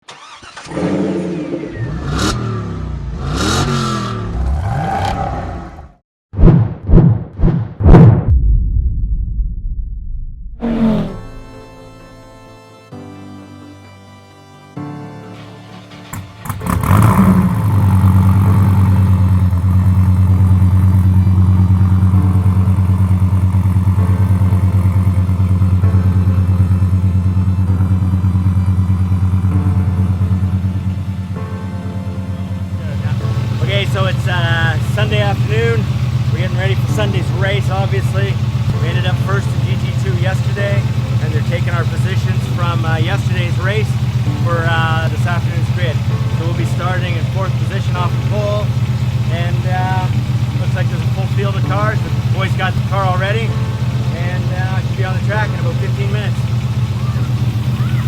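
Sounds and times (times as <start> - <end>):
race car engines revving: 0.1 - 6.0, 10.6 - 11.8, 16.0 - 26.6, 32.5 - 58.0.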